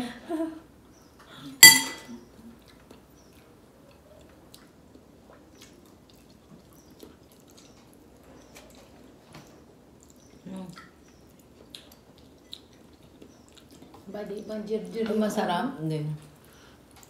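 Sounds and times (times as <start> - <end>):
wet chewing of mango: 2.2 - 15.4.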